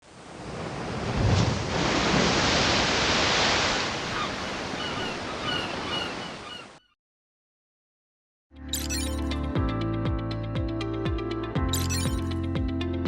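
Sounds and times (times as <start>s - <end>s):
rushing sea water: 0.0s - 6.6s
short high chirps: 8.7s - 9.3s, 11.7s - 12.3s.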